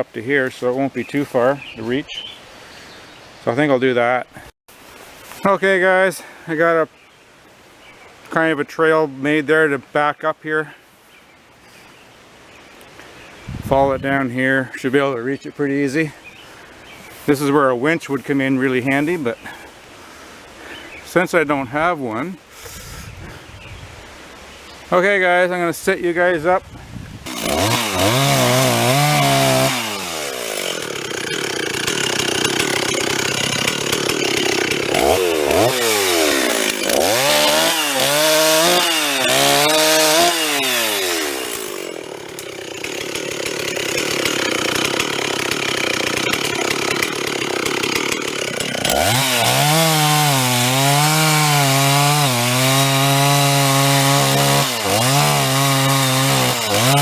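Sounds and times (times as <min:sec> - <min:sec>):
chainsaw cutting log: 0:27.2 - 0:57.0.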